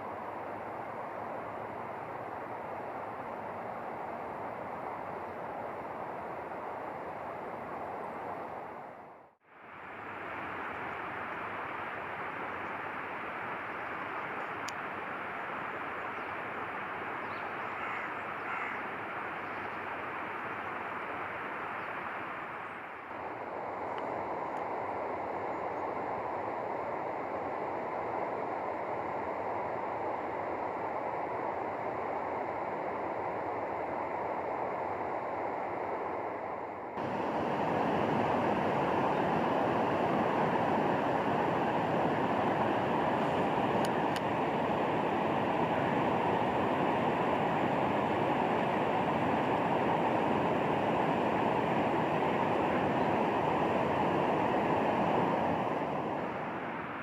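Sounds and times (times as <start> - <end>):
flowing water rushing: 37.0 - 57.0.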